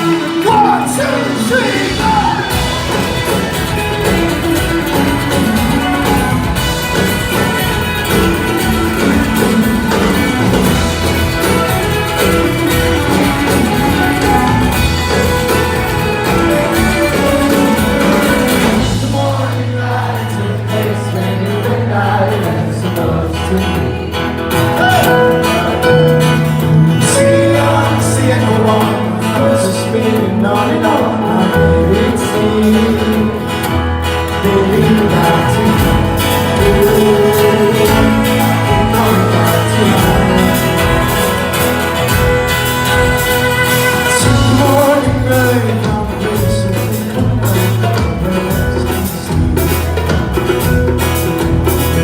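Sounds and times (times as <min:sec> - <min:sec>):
bass: 0:00.0 - 0:52.0
guitar: 0:00.0 - 0:52.0
person singing: 0:00.0 - 0:52.0.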